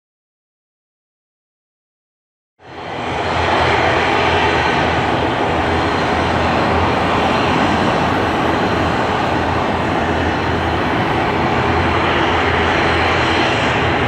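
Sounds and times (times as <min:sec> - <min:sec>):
jet engines roaring: 0:02.6 - 0:14.0.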